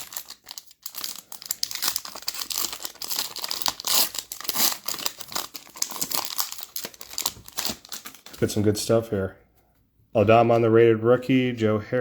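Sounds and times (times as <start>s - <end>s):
card pack wrapper tearing: 0.0s - 8.5s.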